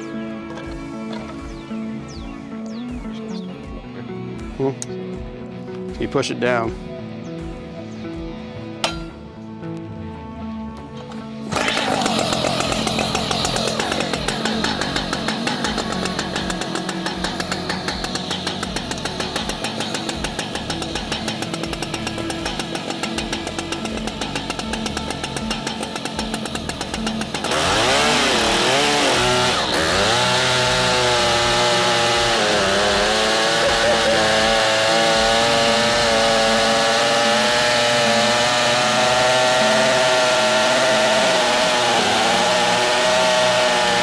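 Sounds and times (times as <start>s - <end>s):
chainsaw revving: 11.4s - 44.0s.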